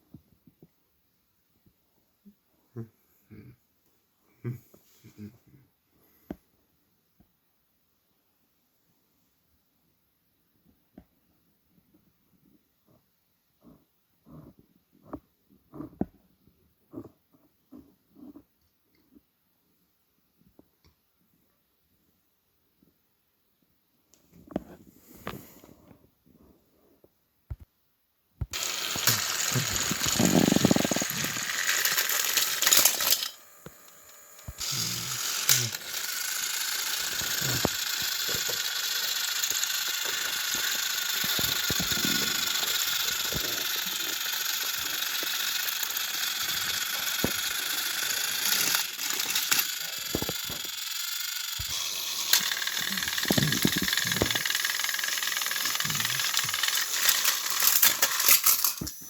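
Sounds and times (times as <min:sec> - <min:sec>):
plastic gears rattling: 0:28.5 - 0:59.0
toy train motors whirring: 0:28.5 - 0:59.0.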